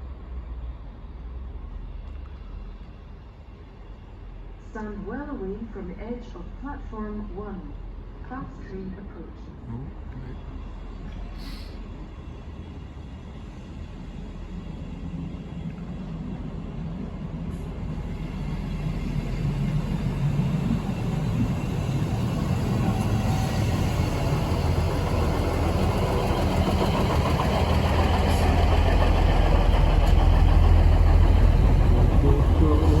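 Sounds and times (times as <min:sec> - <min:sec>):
train approaching: 0:00.0 - 0:33.0.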